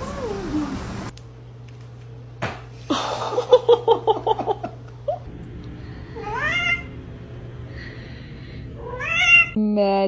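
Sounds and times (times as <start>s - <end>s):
cat meowing: 8.8s - 9.6s.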